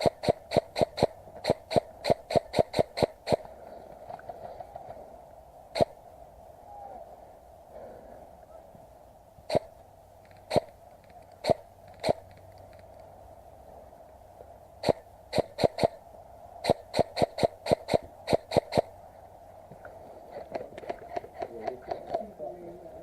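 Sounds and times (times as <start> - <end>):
airsoft gun shots: 0.0 - 3.5, 5.8 - 6.0, 9.5 - 9.7, 11.4 - 12.2, 14.8 - 16.0, 16.6 - 18.9.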